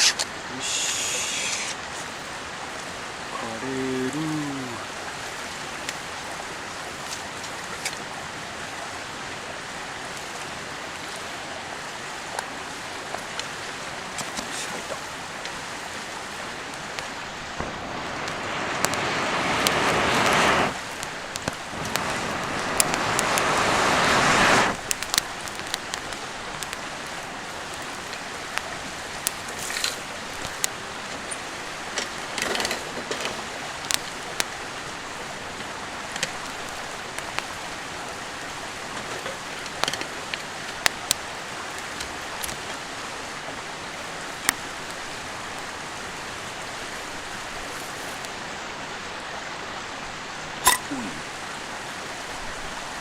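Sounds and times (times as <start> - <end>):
loud hiss: 0.0 - 1.9, 16.8 - 24.8
river rushing: 0.0 - 53.0
campfire crackling and popping: 15.3 - 37.8, 38.4 - 42.8, 44.3 - 45.7.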